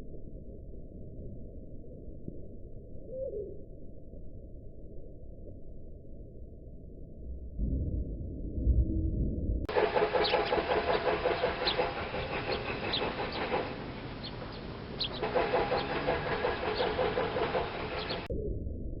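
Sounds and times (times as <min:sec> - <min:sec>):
bird calling in low repeated notes: 0:03.0 - 0:03.8, 0:10.2 - 0:18.3
small birds chirping: 0:09.8 - 0:18.3.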